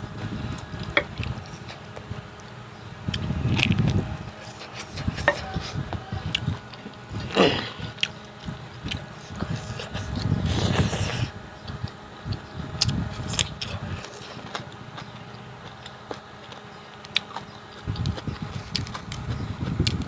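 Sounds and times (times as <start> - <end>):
close chewing: 0.4 - 20.0
sharp mouth clicks: 6.3 - 6.6, 8.8 - 20.0.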